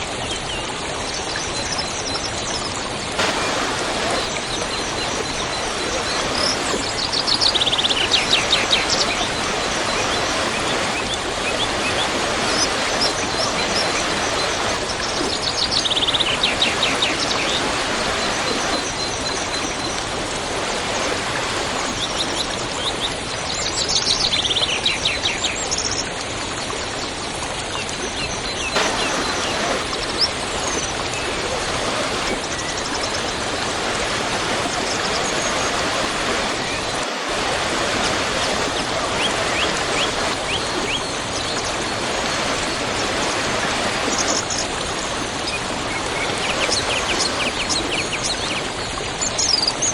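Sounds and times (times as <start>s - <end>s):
waterfall rushing: 1.0s - 23.5s, 27.0s - 49.1s
songbird singing: 1.2s - 23.2s.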